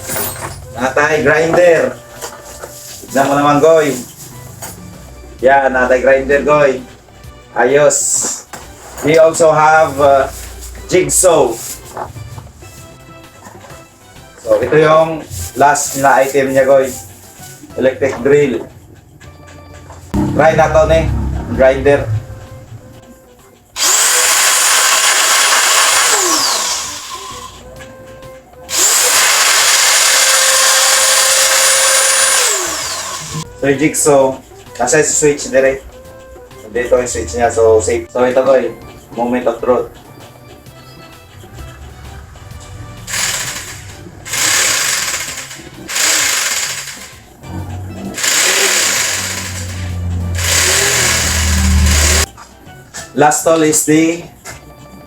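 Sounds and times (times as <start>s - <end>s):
background music: 0.0s - 55.0s
angle grinder motor whining: 23.8s - 27.6s, 28.7s - 33.5s, 43.0s - 47.2s, 48.1s - 52.3s
electric jigsaw buzzing: 23.8s - 27.6s, 28.7s - 33.4s, 43.1s - 47.2s, 48.2s - 52.3s.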